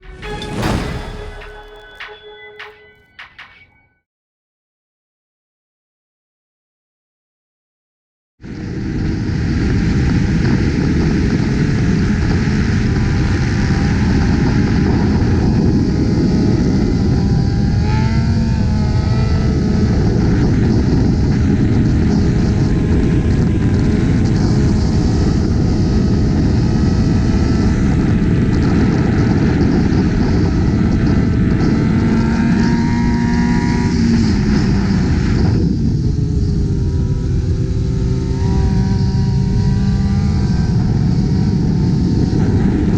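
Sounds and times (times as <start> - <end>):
engine pitch rising and falling: 8.4 - 42.9
highway wind and road noise: 8.4 - 42.9.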